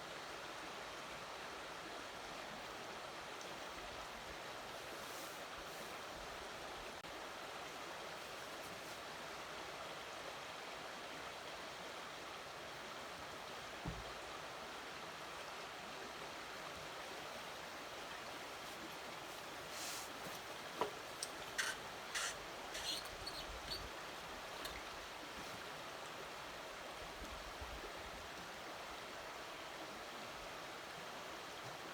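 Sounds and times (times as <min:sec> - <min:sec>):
low thump: 0:13.8 - 0:14.1.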